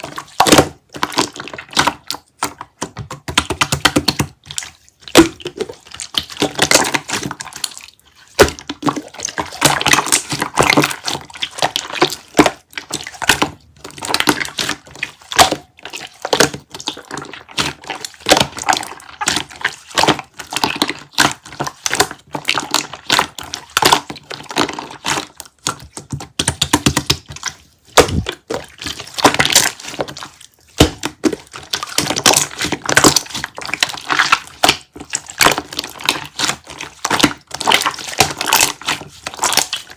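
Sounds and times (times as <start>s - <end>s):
wet chewing and biting: 27.3s - 39.9s.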